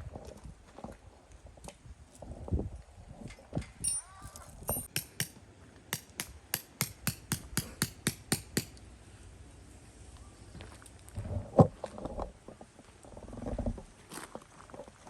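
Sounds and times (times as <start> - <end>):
sharp knocks: 4.7 - 5.4, 6.0 - 8.7.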